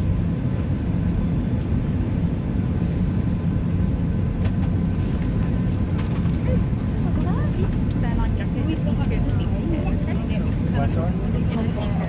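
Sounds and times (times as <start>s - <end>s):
airplane cabin rumble and hum: 0.0s - 12.0s.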